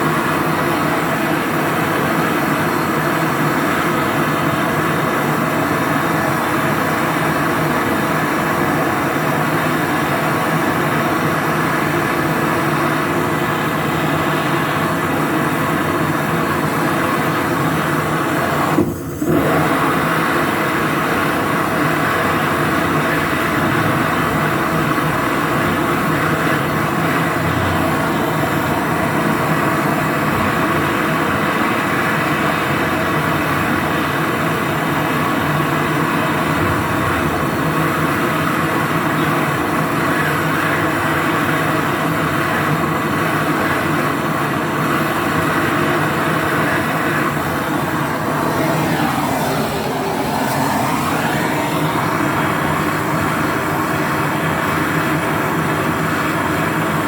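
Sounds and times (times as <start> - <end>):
machine running with hum: 0.0 - 57.0.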